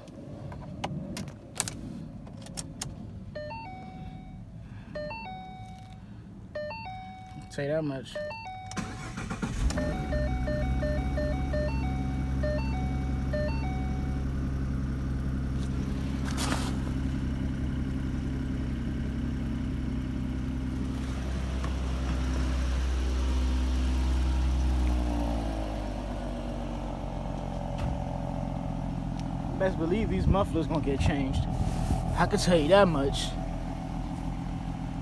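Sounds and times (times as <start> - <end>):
car engine idling: 8.2 - 35.0
short electronic beeps: 9.8 - 14.1.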